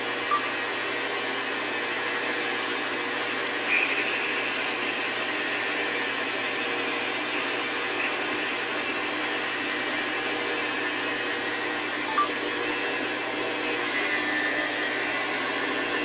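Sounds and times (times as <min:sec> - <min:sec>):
metal lathe drilling: 0:03.4 - 0:12.1, 0:12.9 - 0:16.0
drill bit rattle: 0:03.5 - 0:10.4.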